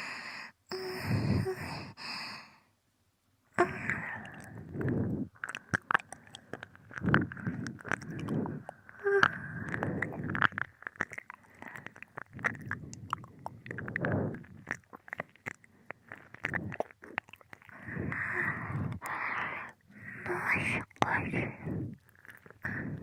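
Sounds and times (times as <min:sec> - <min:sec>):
breaths: 0:00.0 - 0:02.8, 0:03.6 - 0:10.6, 0:11.3 - 0:14.8, 0:17.6 - 0:23.0
slurps: 0:03.6 - 0:23.0
tongue clicks: 0:03.6 - 0:23.0
lip smacks: 0:03.9 - 0:19.8.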